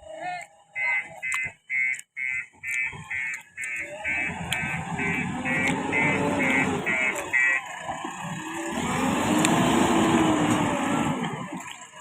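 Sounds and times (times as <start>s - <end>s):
diesel engine running: 0.0s - 12.0s
reversing alarm beeping: 0.8s - 7.8s.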